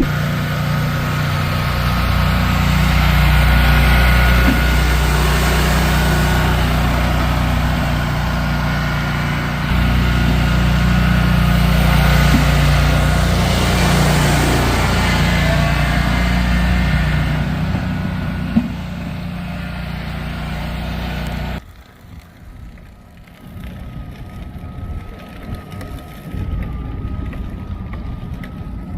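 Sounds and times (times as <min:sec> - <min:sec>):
truck engine running: 0:00.0 - 0:28.9.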